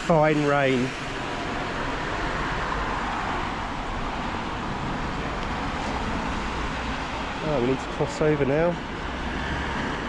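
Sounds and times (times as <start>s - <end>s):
car tyres hissing on wet road: 0.0s - 3.4s.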